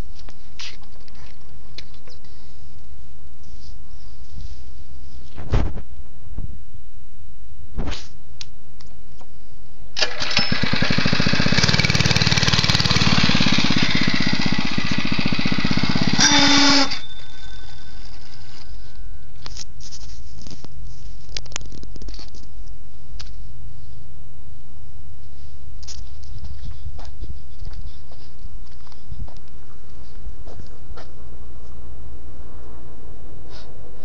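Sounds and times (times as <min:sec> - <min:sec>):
small engine revving: 0:10.0 - 0:18.6.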